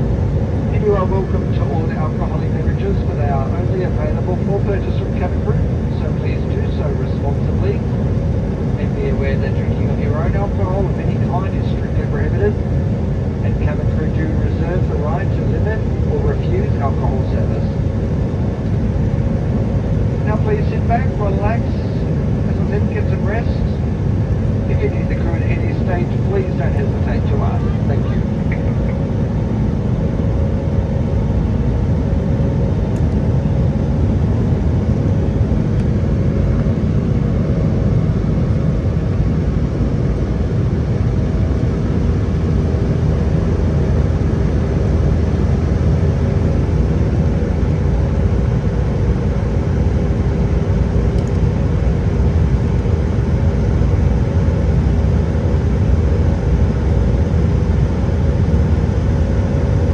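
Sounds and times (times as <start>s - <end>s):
faint steady tones: 0.0s - 54.3s
aircraft engine drone: 0.0s - 59.9s
rushing airflow: 58.4s - 59.9s.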